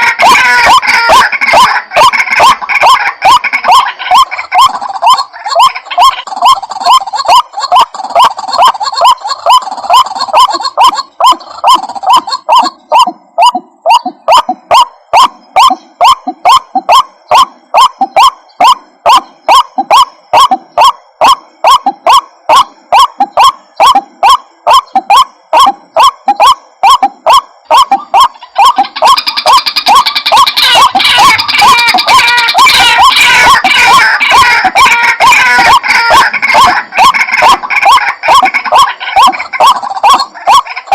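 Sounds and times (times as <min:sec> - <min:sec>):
high bird chattering: 0:00.0 - 0:20.9, 0:24.7 - 0:40.9
waterhen calling: 0:00.0 - 0:40.9.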